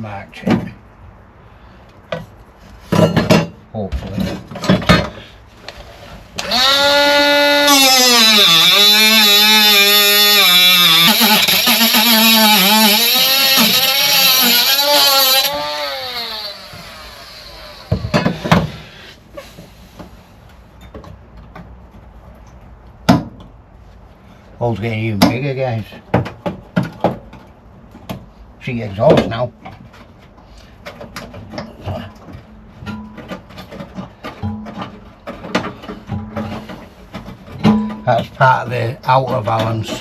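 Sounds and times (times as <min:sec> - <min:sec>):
angle grinder cutting metal: 0:06.4 - 0:18.4.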